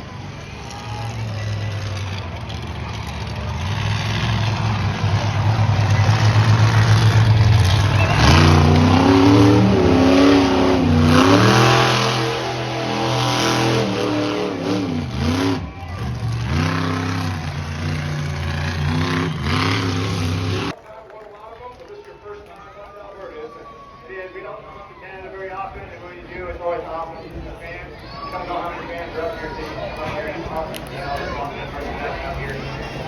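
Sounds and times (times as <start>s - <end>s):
monster truck engines revving: 0.0s - 20.8s, 27.8s - 33.0s.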